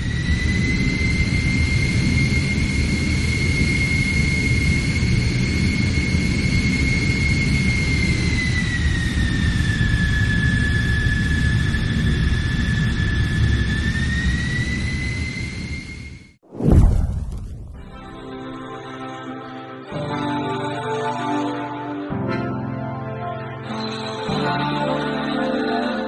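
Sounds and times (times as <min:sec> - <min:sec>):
jet engine whine and rumble: 0:00.0 - 0:18.6.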